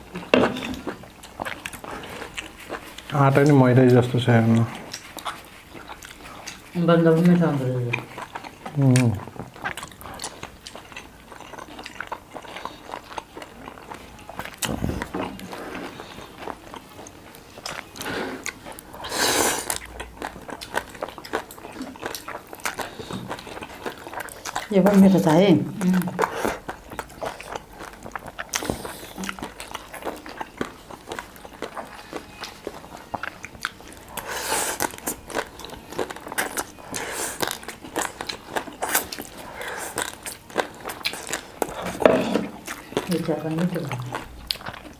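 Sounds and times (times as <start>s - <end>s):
wet chewing mouth clicks: 4.5s - 25.0s, 25.7s - 42.0s.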